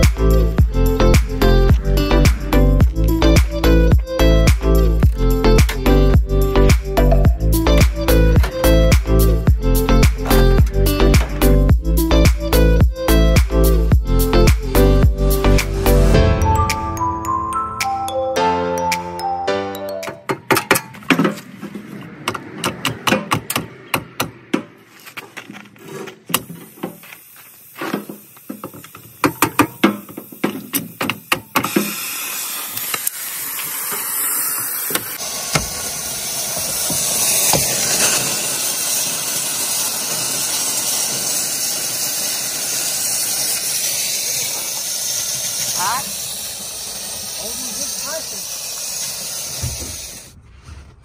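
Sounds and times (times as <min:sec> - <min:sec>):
tools knocking and clanking: 0:20.1 - 0:25.7, 0:27.9 - 0:31.9
steady hiss: 0:26.4 - 0:50.4.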